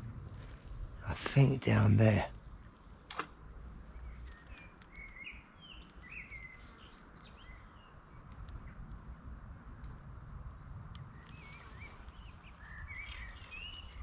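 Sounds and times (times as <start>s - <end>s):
birds chirping faintly: 0.0s - 14.0s
low outdoor rumble: 0.0s - 14.0s
sharp click: 3.1s - 3.4s.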